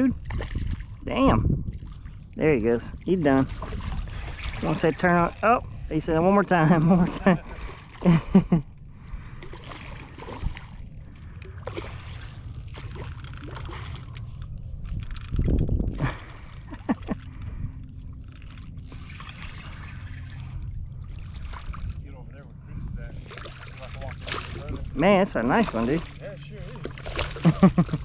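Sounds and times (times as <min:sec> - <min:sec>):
wind rumble on microphone: 0:00.0 - 0:11.8, 0:13.4 - 0:26.1
water sloshing and splashing: 0:00.0 - 0:28.0.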